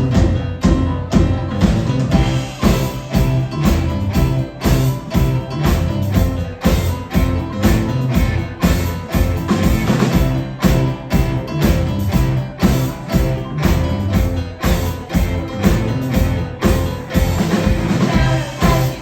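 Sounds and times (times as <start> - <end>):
drums keeping a steady beat: 0.0 - 19.0
electric guitar: 0.0 - 19.0
sustained bass line: 0.0 - 19.0.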